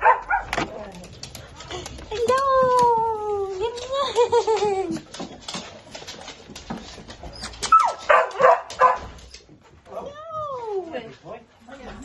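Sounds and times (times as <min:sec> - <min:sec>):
dog yipping: 0:07.3 - 0:09.1.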